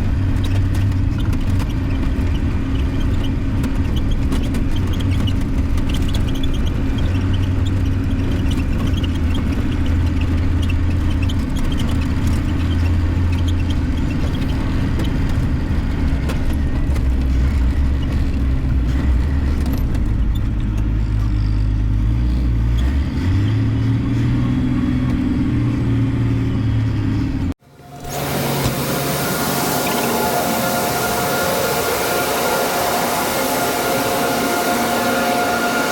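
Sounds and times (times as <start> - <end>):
harvest machinery diesel drone: 24.1 - 35.9
different machine sound: 27.6 - 35.9.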